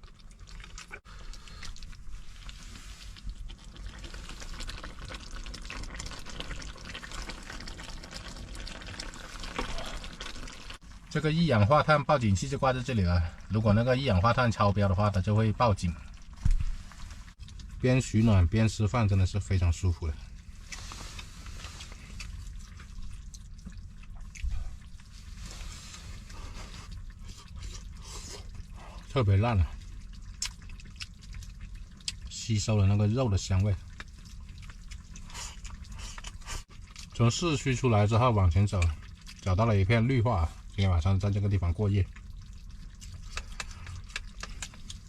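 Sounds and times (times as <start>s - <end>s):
wet chewing: 0.0s - 11.1s, 14.2s - 17.8s, 20.2s - 37.4s, 38.6s - 40.8s, 41.4s - 45.0s
food crackling in a pan: 0.0s - 11.2s, 29.8s - 32.8s, 33.4s - 37.2s, 42.0s - 45.0s.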